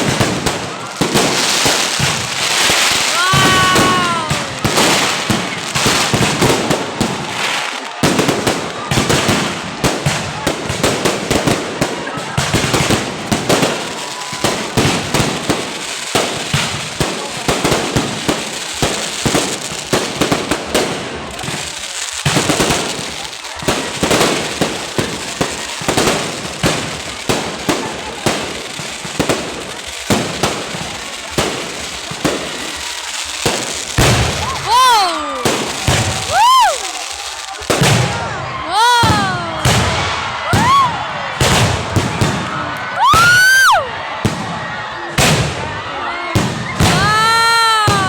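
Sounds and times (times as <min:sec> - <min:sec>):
fireworks bangs and crackles: 0:00.0 - 0:48.0.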